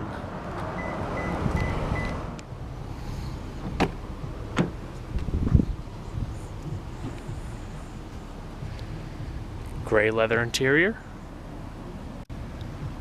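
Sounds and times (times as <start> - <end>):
car engine idling: 0.8 - 13.0
thump: 3.6 - 4.8.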